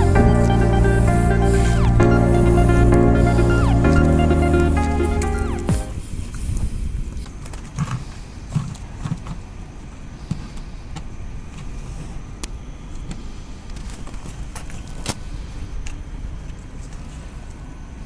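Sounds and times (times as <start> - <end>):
low background rumble: 0.0 - 5.9.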